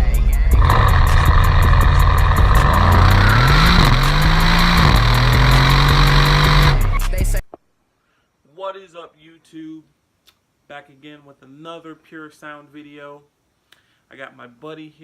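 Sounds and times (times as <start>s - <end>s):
high-pitched whine: 0.0s - 7.2s
car engine running: 0.5s - 7.1s.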